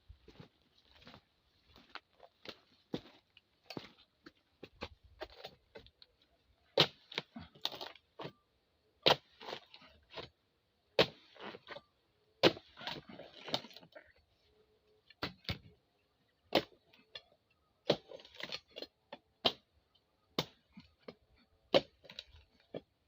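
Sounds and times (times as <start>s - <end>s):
blade chopping frond stalks: 11.0s - 11.7s.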